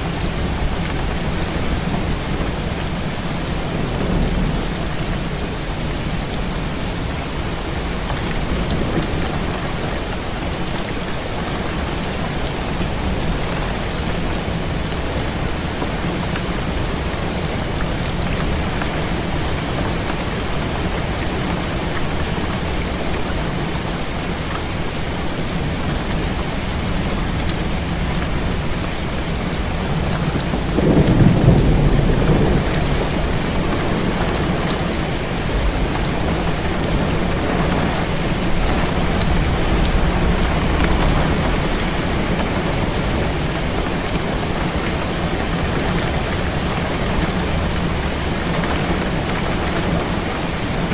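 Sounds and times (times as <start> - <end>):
heavy rain: 0.0 - 50.9
thunder rolling: 29.8 - 37.6.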